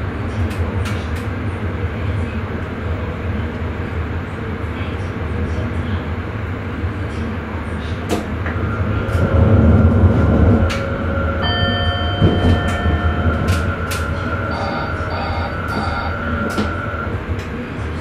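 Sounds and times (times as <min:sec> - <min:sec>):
train wheels rumbling on rail: 0:00.0 - 0:18.0
high whining tones: 0:08.3 - 0:18.0.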